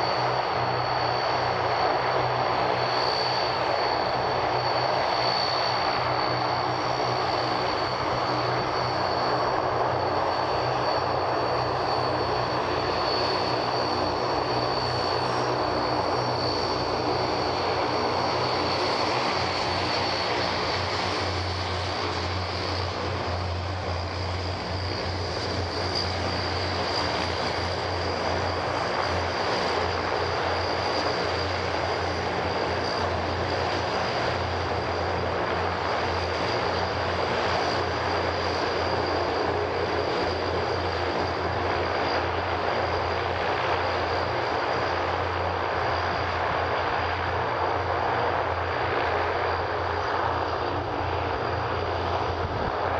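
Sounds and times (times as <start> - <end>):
high engine whine: 0.0 - 52.9
propeller drone: 0.0 - 52.9.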